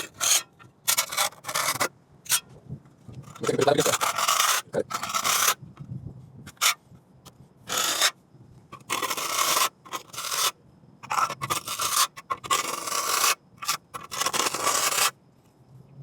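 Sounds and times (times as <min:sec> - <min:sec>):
trowel scraping wet cement: 0:00.0 - 0:02.4, 0:03.2 - 0:05.6, 0:06.5 - 0:06.8, 0:07.7 - 0:08.2, 0:08.8 - 0:15.1.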